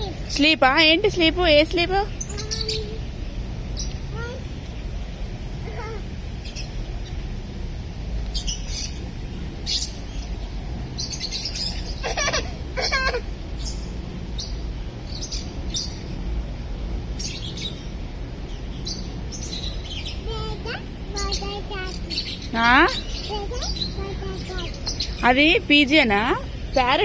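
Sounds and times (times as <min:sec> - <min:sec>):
low background hum: 0:00.0 - 0:27.0
parrot chirping: 0:02.2 - 0:03.0, 0:18.9 - 0:27.0.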